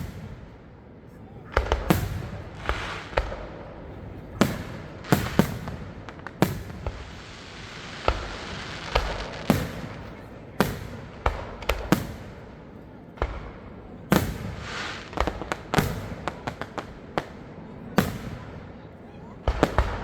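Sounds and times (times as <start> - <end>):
fireworks bursting with echo: 0.0 - 20.0.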